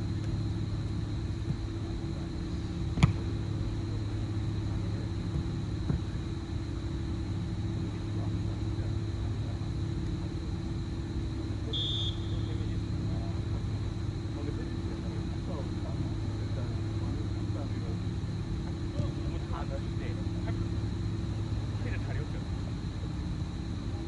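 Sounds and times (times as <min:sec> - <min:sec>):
low background hum: 0:00.0 - 0:24.0
sharp thump: 0:02.9 - 0:03.3
short high whistle-like tone: 0:11.7 - 0:12.6.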